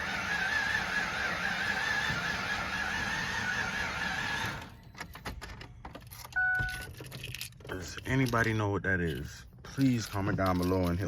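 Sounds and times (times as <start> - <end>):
engine starter cranking: 0.0 - 7.6.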